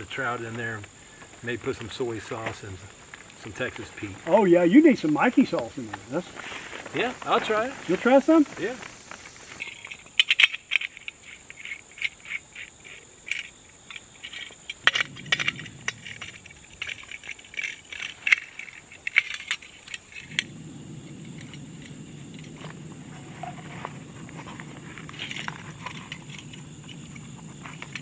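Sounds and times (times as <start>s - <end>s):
steady low hum: 14.2s - 28.0s.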